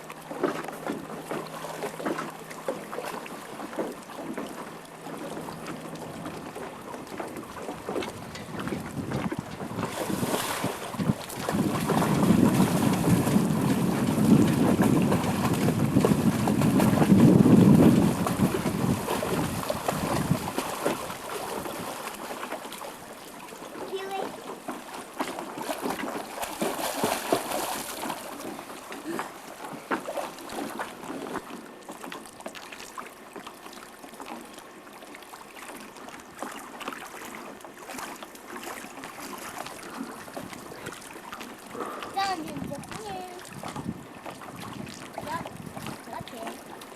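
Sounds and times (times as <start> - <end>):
small splashes: 0.0 - 46.9
water sloshing: 0.0 - 46.9
wind buffeting microphone: 7.0 - 22.0, 41.8 - 46.6.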